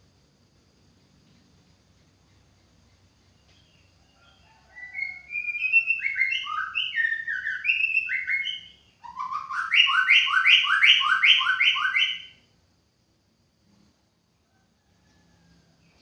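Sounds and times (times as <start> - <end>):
bird singing whistled notes: 2.3 - 12.4.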